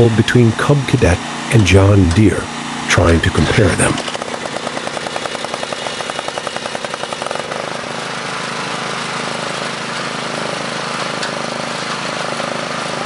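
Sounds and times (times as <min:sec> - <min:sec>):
lawn tractor engines running: 0:00.0 - 0:13.0.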